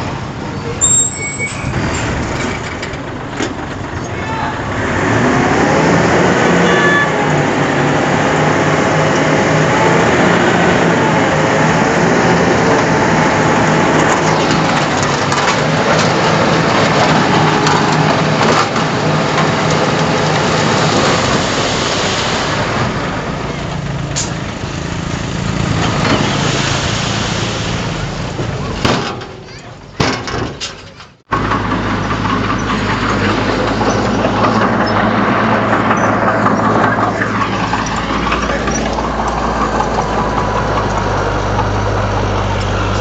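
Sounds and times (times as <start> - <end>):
bulldozer running under load: 0.0 - 43.0
clanking and rattling: 0.8 - 4.2, 12.2 - 21.5, 28.3 - 43.0.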